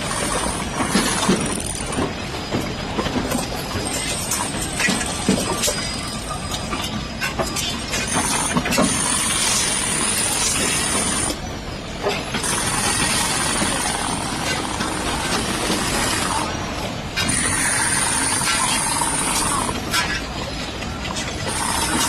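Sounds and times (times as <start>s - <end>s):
construction site noise: 0.0s - 22.0s.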